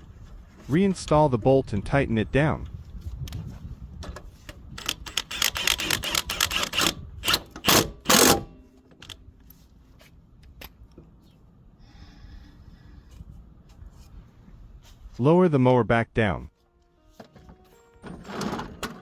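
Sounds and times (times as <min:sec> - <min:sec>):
socket ratchet clicking: 0:04.8 - 0:09.2.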